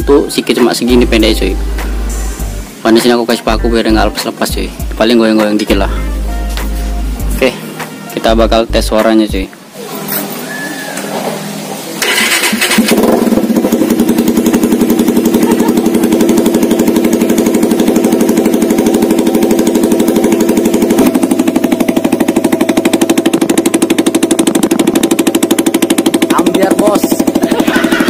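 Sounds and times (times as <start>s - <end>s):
motorcycle engine putter: 12.0s - 28.0s.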